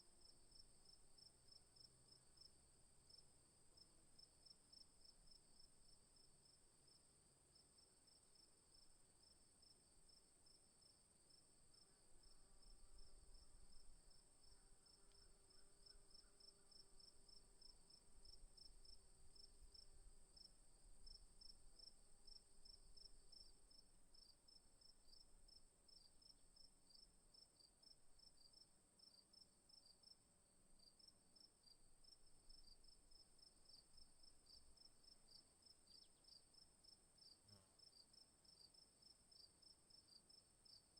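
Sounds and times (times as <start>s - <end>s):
insect chirps: 8.1s - 30.2s, 30.8s - 40.9s.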